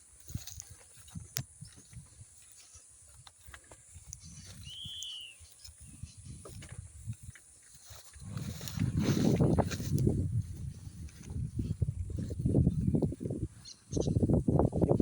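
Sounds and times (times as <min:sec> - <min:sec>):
wind buffeting microphone: 0:00.2 - 0:02.4, 0:03.9 - 0:15.0
short bird chirp: 0:04.2 - 0:05.8.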